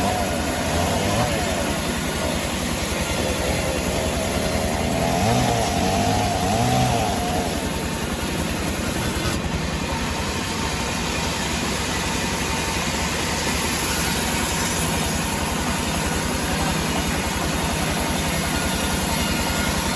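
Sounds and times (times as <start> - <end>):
engine idling: 0.0 - 19.9.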